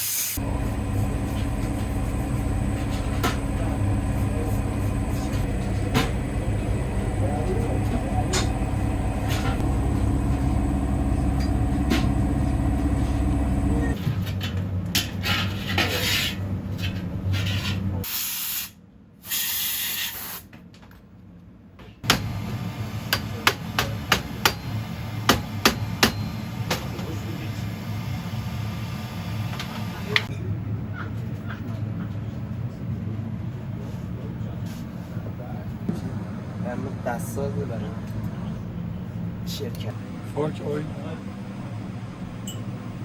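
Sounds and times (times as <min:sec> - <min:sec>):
low hum: 0:00.4 - 0:14.0.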